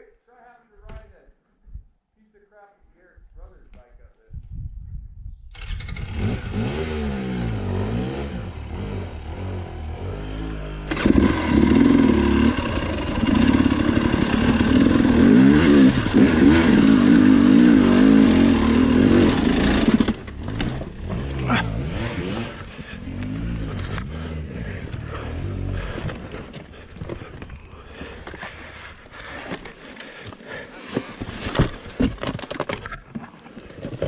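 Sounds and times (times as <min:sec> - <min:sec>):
dirt bike engine revving: 0:05.6 - 0:26.8.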